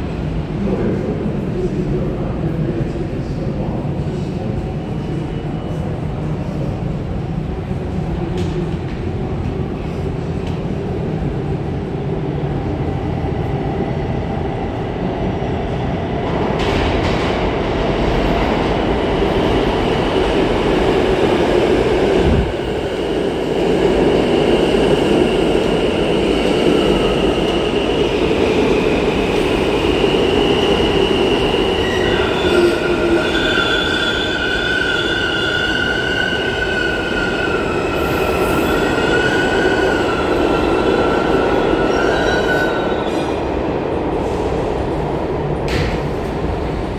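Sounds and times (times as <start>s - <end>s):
subway train rumbling on rails: 0.0s - 46.9s.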